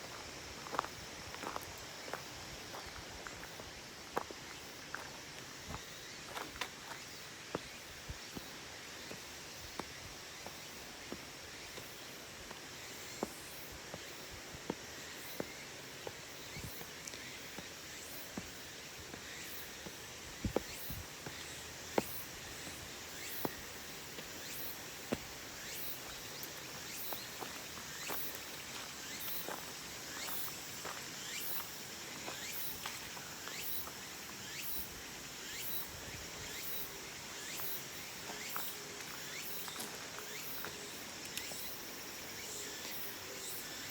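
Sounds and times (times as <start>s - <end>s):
background hiss: 0.0s - 43.9s
insect high chirps: 0.0s - 43.9s.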